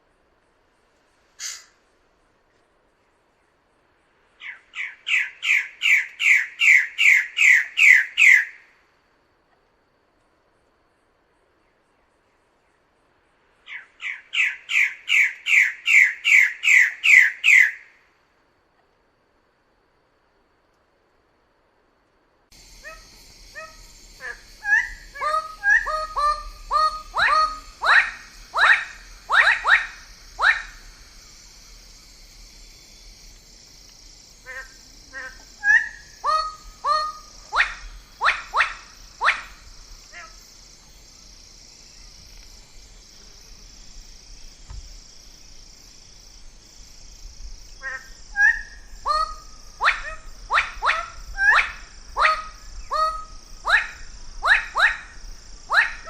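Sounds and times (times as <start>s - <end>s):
bird calling with descending notes: 22.8s - 30.8s.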